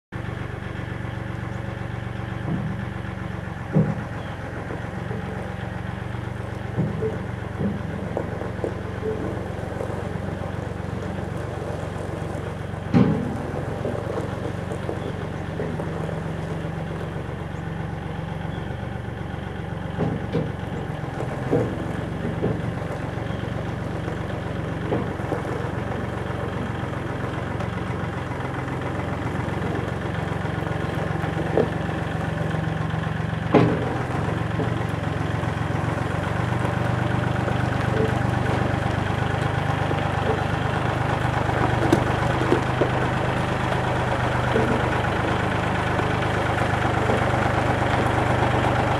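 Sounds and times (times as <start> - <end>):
truck engine idling: 0.1 - 48.9
short sharp clunks: 12.8 - 13.6.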